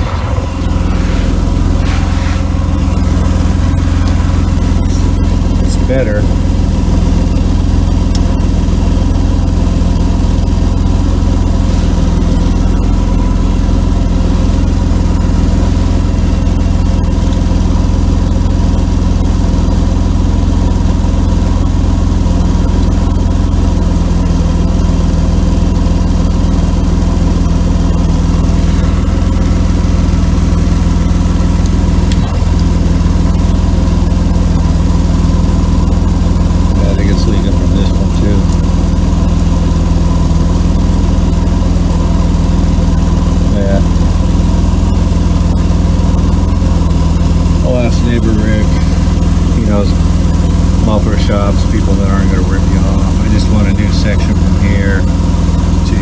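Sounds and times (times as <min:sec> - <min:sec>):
car engine idling: 0:00.0 - 0:56.0
exhaust leak: 0:00.0 - 0:56.0.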